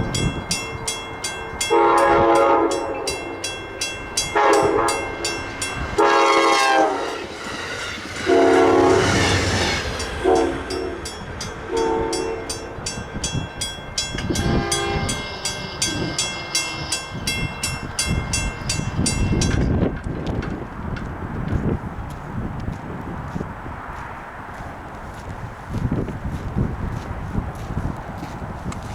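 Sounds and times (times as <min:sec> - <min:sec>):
train rumbling past: 0:00.0 - 0:28.9
train air horn: 0:01.6 - 0:03.2, 0:04.2 - 0:12.7, 0:14.2 - 0:17.3.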